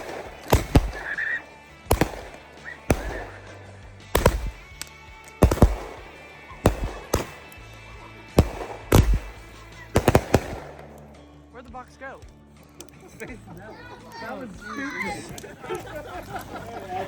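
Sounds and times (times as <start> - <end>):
fireworks bangs: 0.0 - 11.1.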